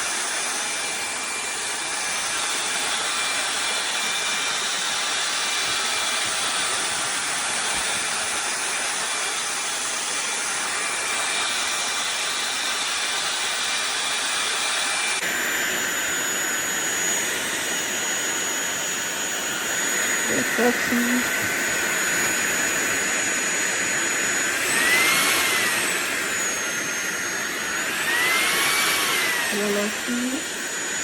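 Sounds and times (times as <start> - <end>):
stick vacuum cleaner running: 0.0 - 31.0
thin high whine: 15.6 - 21.3, 28.5 - 31.0.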